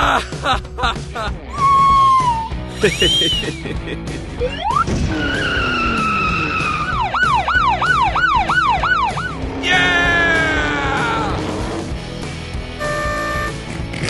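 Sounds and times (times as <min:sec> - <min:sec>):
background music: 0:00.0 - 0:14.0
siren wailing and yelping: 0:04.4 - 0:09.4.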